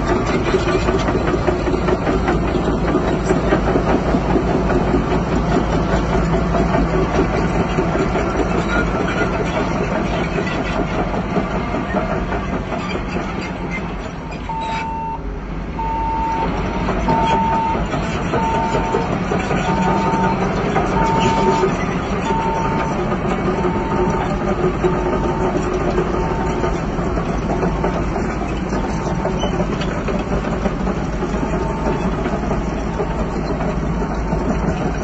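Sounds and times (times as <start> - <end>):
heavy machinery clatter: 0.0 - 35.0
reversing alarm beeps: 14.3 - 15.2, 15.8 - 24.3.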